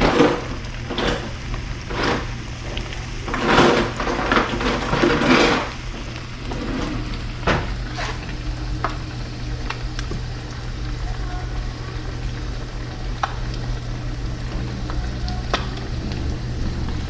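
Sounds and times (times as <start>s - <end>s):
pots and pans clattering: 0.0s - 8.3s
steady low hum: 0.0s - 17.0s.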